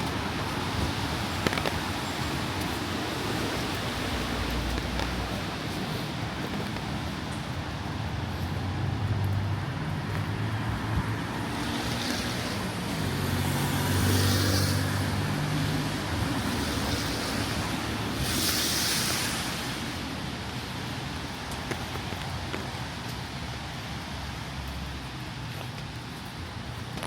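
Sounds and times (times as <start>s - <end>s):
low hum of engines: 0.0s - 17.9s
car tyres hissing on wet road: 0.0s - 27.0s
steady rain hiss: 0.0s - 27.0s.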